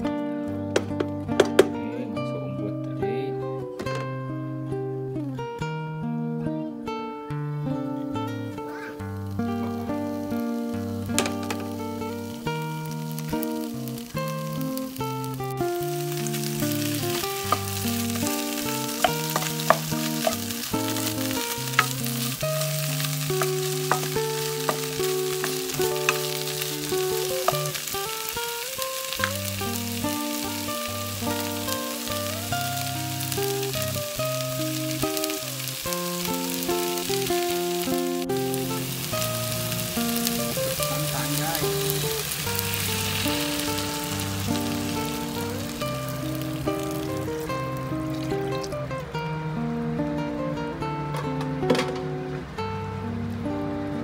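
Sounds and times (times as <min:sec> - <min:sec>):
background music: 0:00.0 - 0:54.0
food sizzling in oil in a wok: 0:08.7 - 0:48.9.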